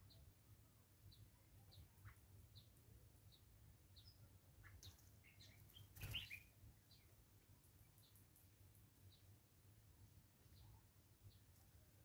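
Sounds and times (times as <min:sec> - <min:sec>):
wild birds chirping: 0:00.0 - 0:12.0
bird wings fluttering: 0:05.7 - 0:06.4.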